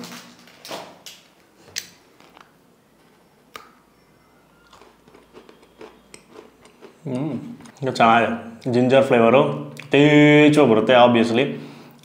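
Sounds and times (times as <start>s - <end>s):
cookie crunching: 0.0s - 8.9s
faint chewing: 4.5s - 7.9s.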